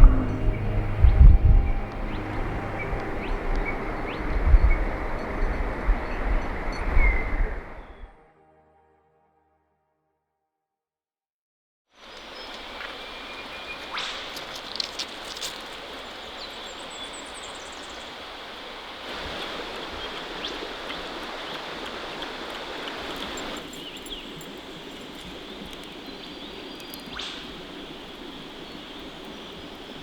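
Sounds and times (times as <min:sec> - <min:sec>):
creek water running: 0:00.0 - 0:07.8, 0:12.0 - 0:30.0.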